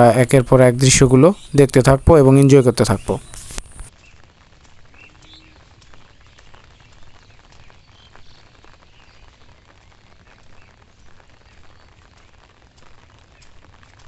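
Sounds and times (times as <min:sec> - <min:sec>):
faint bird chirps: 0:00.1 - 0:04.2, 0:04.9 - 0:09.4
crackle of small ticks: 0:03.2 - 0:14.0.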